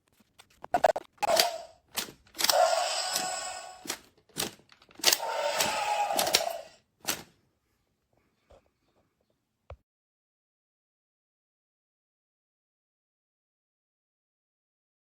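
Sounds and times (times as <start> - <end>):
toy dinosaur roaring through speaker: 1.2 - 1.7, 2.4 - 3.9, 5.0 - 6.8
plastic mechanism clicks and knocks: 3.9 - 7.3.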